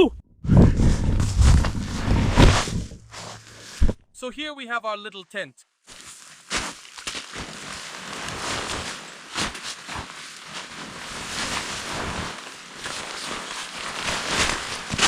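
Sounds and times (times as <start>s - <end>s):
rustling noise: 0.4s - 4.1s, 5.8s - 15.0s.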